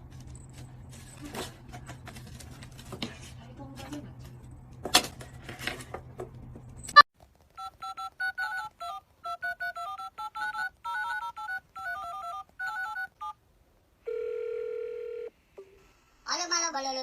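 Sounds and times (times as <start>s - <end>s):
telephone keypad touch-tones: 7.6s - 13.4s.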